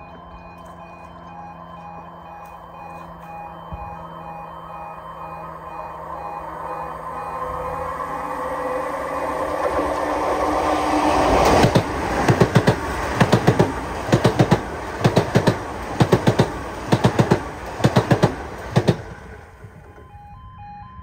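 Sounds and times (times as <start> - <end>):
two-tone level crossing alarm: 0.0 - 21.0
train wheels clattering over rail joints: 8.6 - 20.0.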